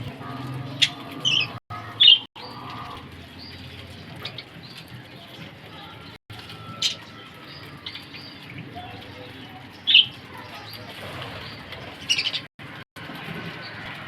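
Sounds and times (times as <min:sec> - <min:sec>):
budgerigars chirping: 0:00.2 - 0:04.8, 0:06.7 - 0:12.5.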